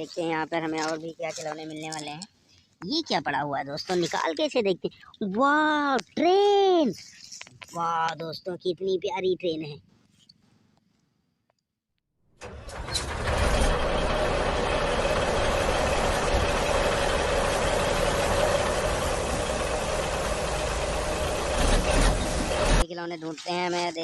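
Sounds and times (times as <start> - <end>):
train rumbling: 12.4 - 22.8.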